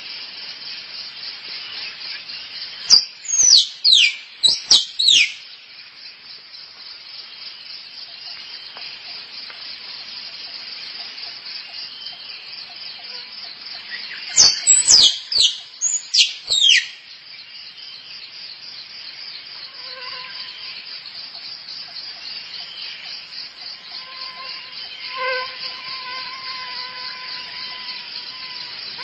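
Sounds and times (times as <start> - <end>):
pulsing insect chorus: 0.0 - 29.0
squirrel squeaky calls: 2.9 - 5.4, 14.4 - 16.9.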